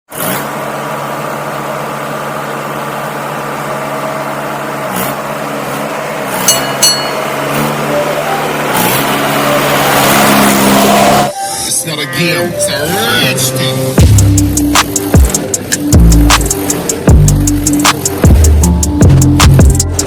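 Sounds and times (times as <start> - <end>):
tractor diesel engine running: 0.1 - 20.0.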